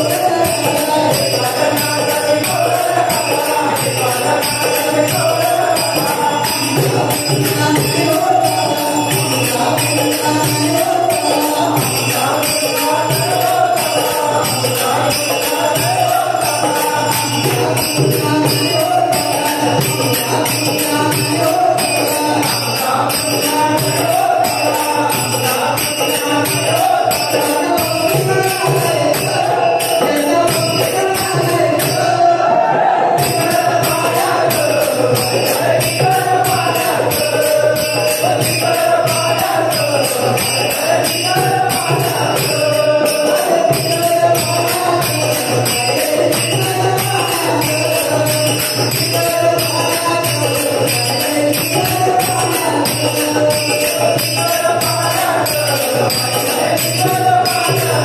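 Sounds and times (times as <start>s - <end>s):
metal hand percussion jingling: 0.0s - 32.4s, 33.1s - 58.0s.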